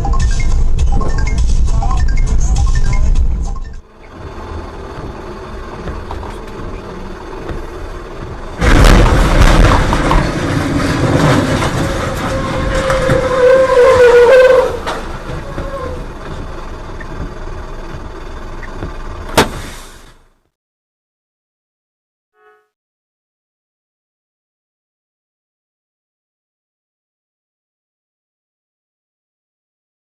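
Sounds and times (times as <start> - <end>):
vehicle road noise: 0.0 - 20.5
drawn-out squeal: 3.8 - 18.8
loud vehicle crash: 4.1 - 20.3
crunching and scraping: 7.5 - 16.5.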